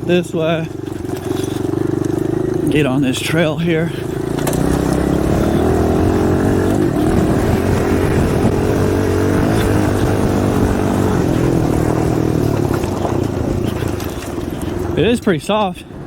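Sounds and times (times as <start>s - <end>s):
dirt bike engine running: 0.0s - 16.0s
wind noise on microphone: 5.6s - 14.9s.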